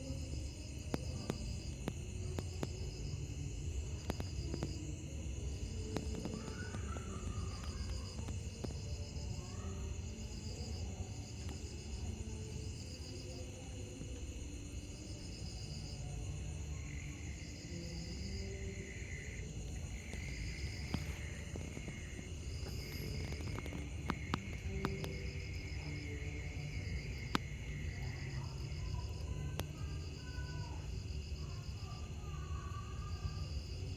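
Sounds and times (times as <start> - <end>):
crickets chirping: 0.0 - 33.9
steady high insect drone: 0.0 - 33.9.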